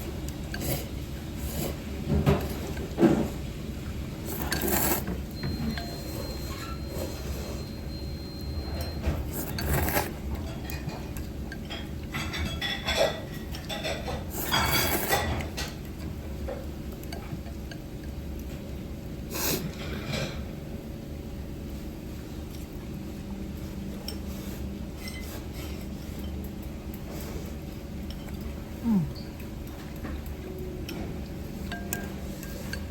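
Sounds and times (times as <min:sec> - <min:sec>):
low background hum: 0:00.0 - 0:32.9
chopsticks clinking on a bowl: 0:08.8 - 0:15.8, 0:30.8 - 0:32.9.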